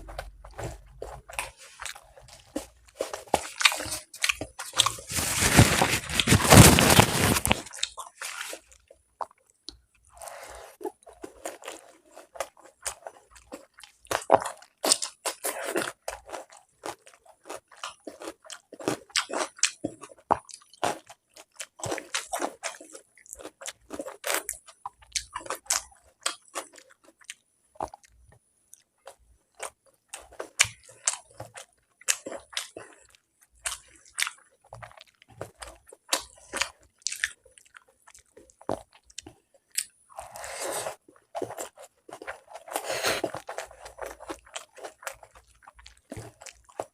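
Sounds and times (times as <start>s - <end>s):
loud crunching: 0.0s - 7.9s
person chewing food: 0.0s - 46.9s.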